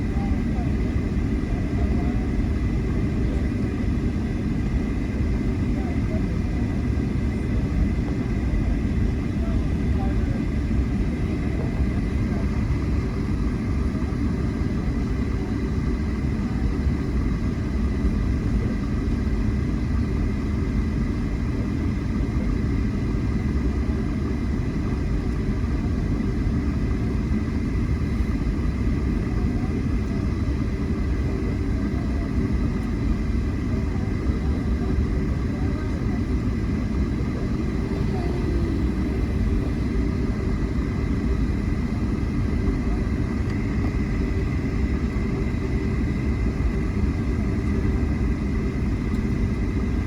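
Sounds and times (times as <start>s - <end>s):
jet engine and airflow rumble: 0.0s - 50.0s.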